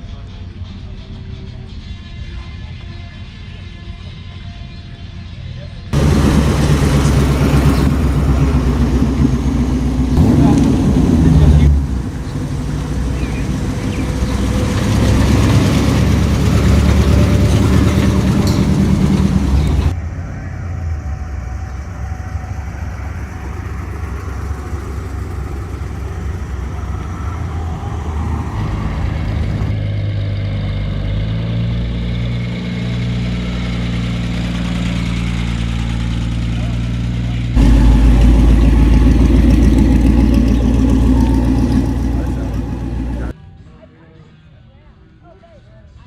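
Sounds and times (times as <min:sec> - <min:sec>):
loud car engine: 0:05.9 - 0:43.4
car engine idling: 0:06.0 - 0:30.3, 0:33.6 - 0:43.4.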